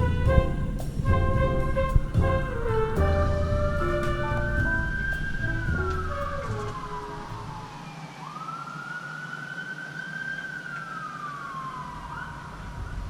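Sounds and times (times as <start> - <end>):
background music: 0.0 - 7.8
emergency siren wailing: 3.8 - 13.0.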